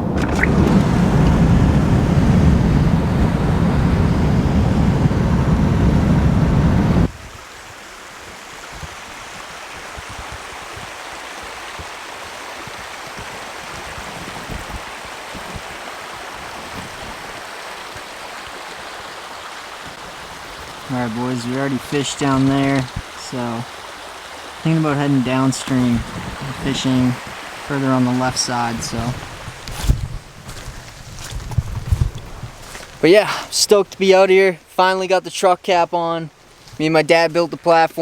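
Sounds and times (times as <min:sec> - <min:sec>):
vehicle road rumble: 0:00.0 - 0:07.1, 0:24.6 - 0:33.0
rushing stream: 0:00.0 - 0:38.0.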